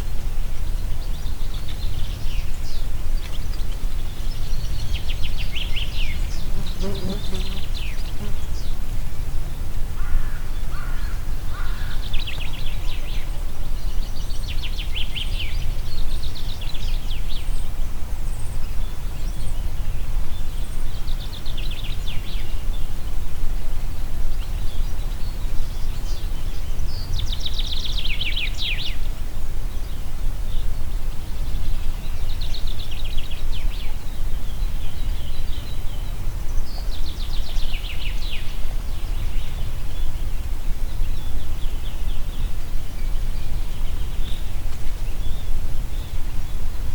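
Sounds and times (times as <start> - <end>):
wind rumbling through forest: 0.0 - 46.9
songbirds trilling: 4.5 - 8.8.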